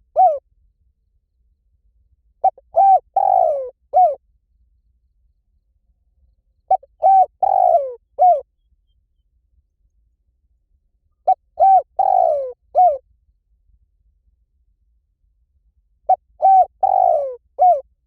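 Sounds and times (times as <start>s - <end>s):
dove cooing: 0.0s - 0.4s, 2.4s - 4.2s, 6.7s - 8.5s, 11.2s - 13.0s, 16.1s - 17.9s.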